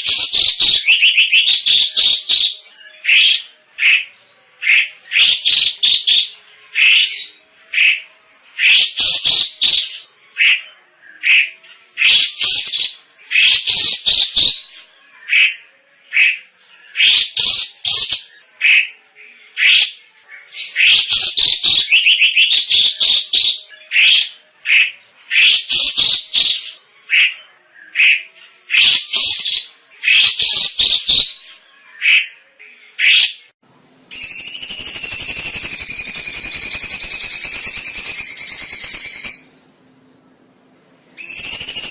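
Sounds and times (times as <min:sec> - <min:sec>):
bird chirping song: 0:00.0 - 0:41.9
jingling ringing sound: 0:34.1 - 0:36.0, 0:41.2 - 0:41.9.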